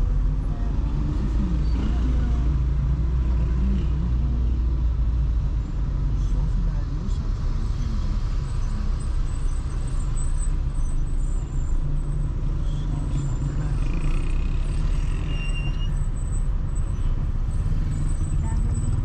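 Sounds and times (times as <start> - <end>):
car engine and road noise: 0.0 - 19.0
faint high squeal: 15.0 - 17.2.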